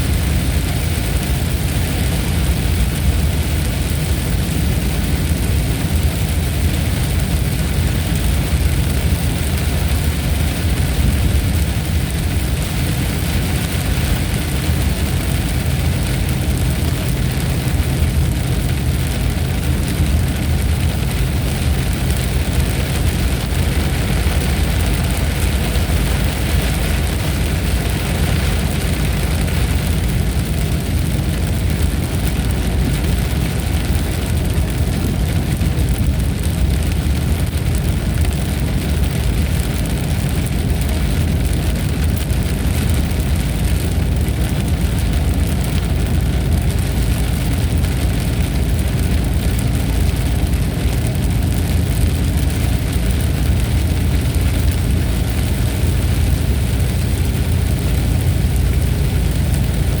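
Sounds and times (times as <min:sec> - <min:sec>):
rain hiss: 0:00.0 - 1:00.0.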